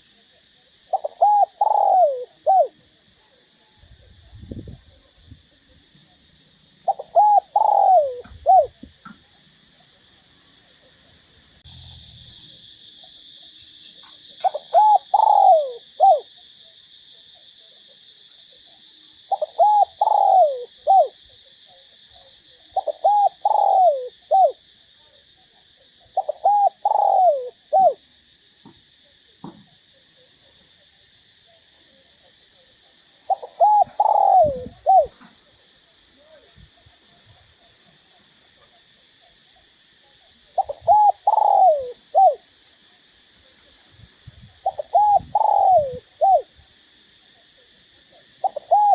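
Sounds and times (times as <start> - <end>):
dove cooing: 0.9 - 2.8, 6.8 - 9.3, 14.0 - 16.3, 19.3 - 24.6, 26.1 - 28.0, 33.3 - 35.6, 40.5 - 42.4, 44.6 - 46.5, 48.4 - 48.9.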